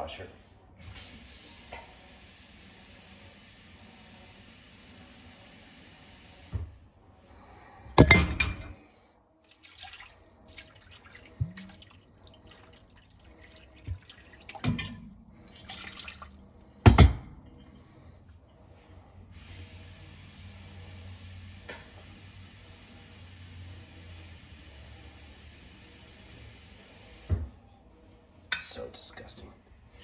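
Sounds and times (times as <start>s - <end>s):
water splashing in dishwasher: 9.5s - 17.2s.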